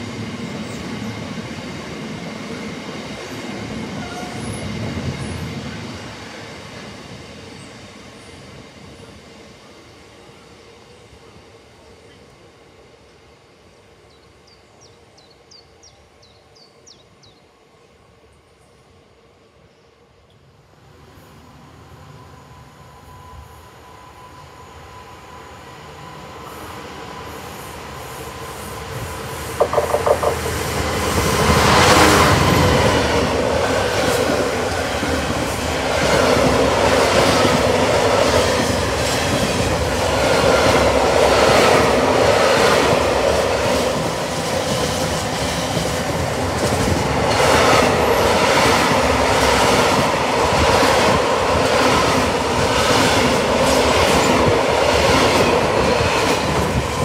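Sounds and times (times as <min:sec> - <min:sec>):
diesel locomotive passing: 0:00.0 - 0:57.0
wheels clacking over rail joints: 0:29.6 - 0:32.0.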